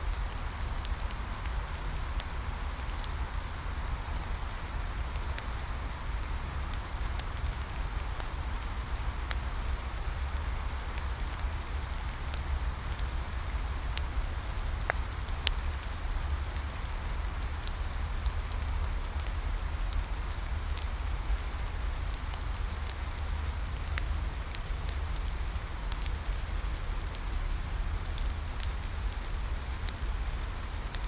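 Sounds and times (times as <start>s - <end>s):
bonfire crackling: 0.0s - 31.0s
steady rain falling: 0.0s - 31.0s.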